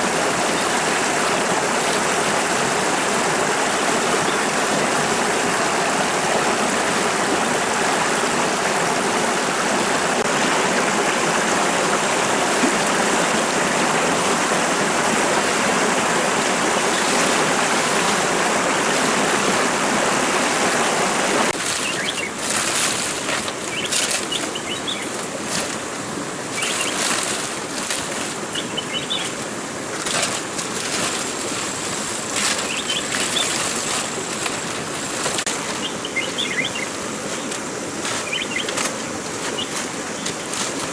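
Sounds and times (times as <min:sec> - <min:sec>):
stream water rushing: 0:00.0 - 0:40.9
small birds chirping: 0:16.6 - 0:19.2, 0:21.5 - 0:40.9
short rustles or knocks: 0:21.5 - 0:26.0, 0:29.2 - 0:35.9.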